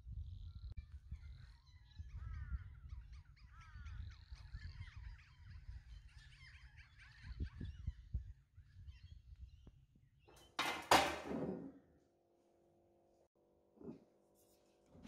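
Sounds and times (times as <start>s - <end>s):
birds calling and chattering: 0.1s - 10.5s.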